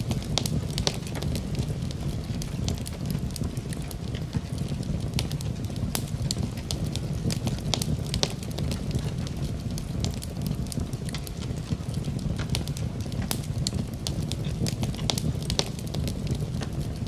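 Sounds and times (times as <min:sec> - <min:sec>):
burning wood crackling: 0:00.0 - 0:17.0
fire flames rumbling: 0:00.0 - 0:17.0.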